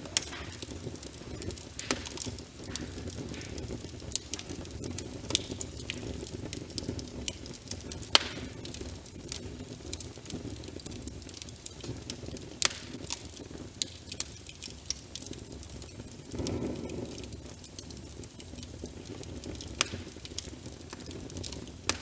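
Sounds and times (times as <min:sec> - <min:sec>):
wood fire crackling in fireplace: 0:00.0 - 0:22.0
rain rushing: 0:16.2 - 0:17.6.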